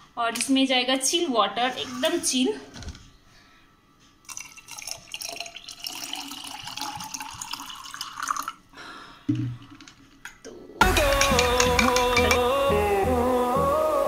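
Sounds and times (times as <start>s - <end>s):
water pouring into a jar: 4.2s - 8.6s.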